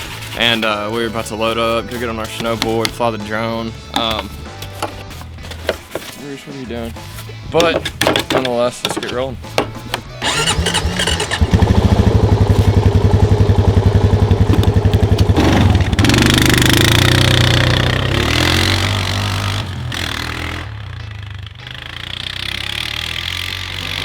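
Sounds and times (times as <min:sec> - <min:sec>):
atv engine chugging and revving: 0:10.2 - 0:24.0.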